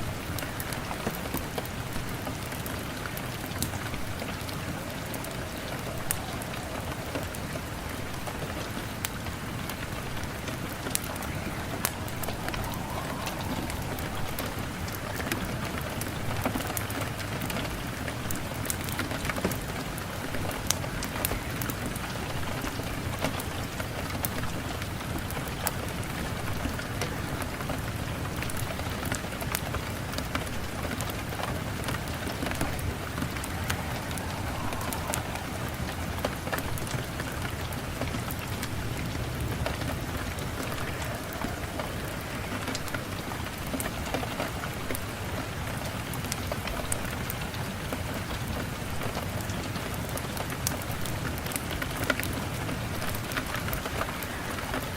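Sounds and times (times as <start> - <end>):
wood fire crackling: 0.0 - 48.0
steady rain hissing: 0.0 - 54.9.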